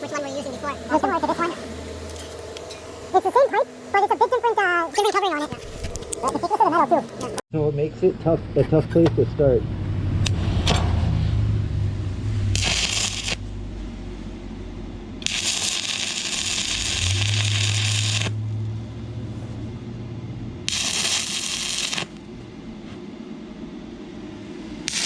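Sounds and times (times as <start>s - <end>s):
welding arc crackling: 0.0s - 7.4s, 12.2s - 19.9s, 20.6s - 22.6s, 24.8s - 25.0s
steady low hum: 0.0s - 25.0s.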